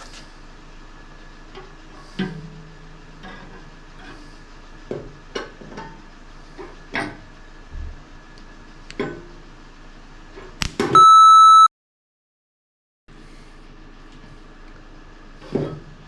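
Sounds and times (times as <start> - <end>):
loud electronic beep: 11.0 - 11.7.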